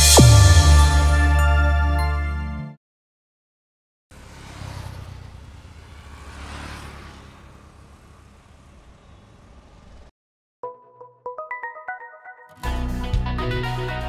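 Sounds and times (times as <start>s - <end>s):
car engine rumbling: 4.1s - 10.1s.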